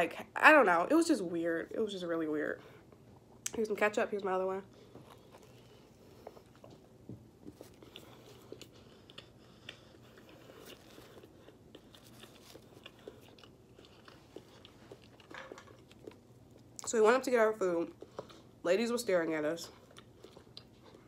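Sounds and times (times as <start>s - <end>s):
person chewing sandwich: 4.7s - 16.8s, 19.7s - 21.0s.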